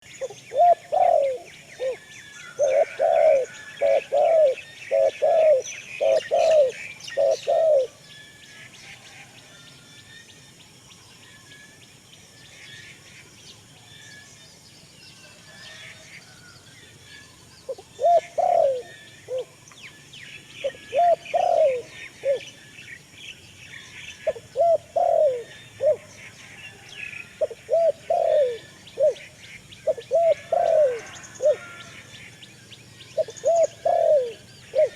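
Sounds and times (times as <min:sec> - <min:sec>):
small birds chirping: 0:00.0 - 0:08.0, 0:32.3 - 0:34.9
birds calling low arching call: 0:00.2 - 0:08.0, 0:20.6 - 0:22.6, 0:24.1 - 0:32.4, 0:33.2 - 0:34.9.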